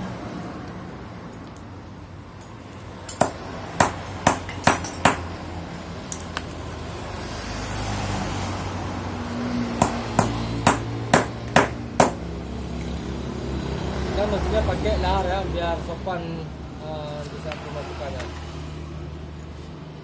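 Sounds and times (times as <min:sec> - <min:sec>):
hammer tapping metal: 0:03.1 - 0:05.3, 0:09.8 - 0:12.3.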